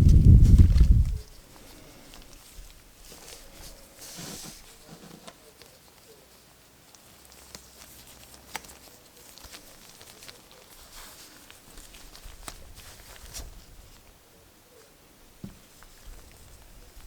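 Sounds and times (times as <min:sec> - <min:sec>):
plastic wrapping crinkling: 0:00.0 - 0:14.1.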